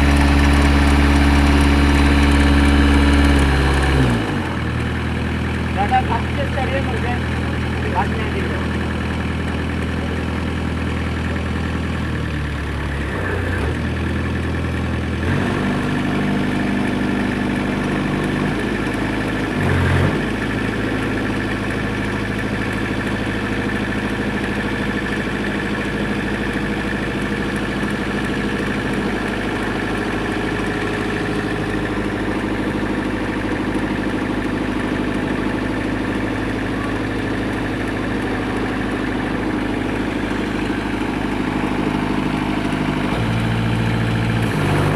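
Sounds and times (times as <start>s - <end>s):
engine idling: 0.0s - 44.9s.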